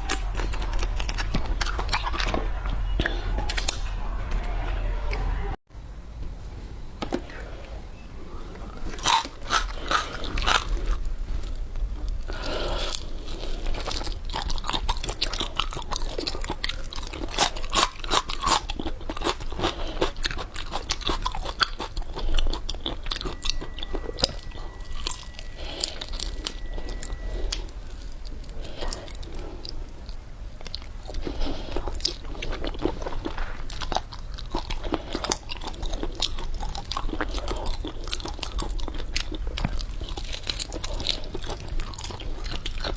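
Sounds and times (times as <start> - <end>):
crunching and wet chewing: 0.0 - 3.8, 8.3 - 42.9
faint high tone: 23.2 - 27.7.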